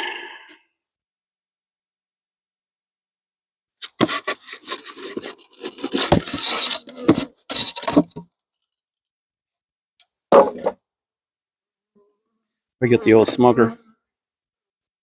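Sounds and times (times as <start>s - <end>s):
rubbing and scraping of objects: 3.8s - 8.2s.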